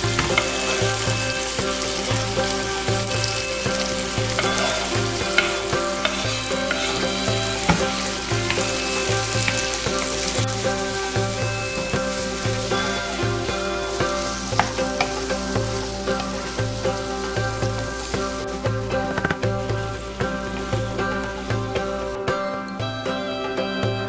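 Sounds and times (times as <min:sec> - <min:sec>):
wooden spatula scraping and knocking: 0:00.0 - 0:19.9
vegetables sizzling in hot oil: 0:00.0 - 0:22.2
background music with bass line: 0:00.0 - 0:24.0.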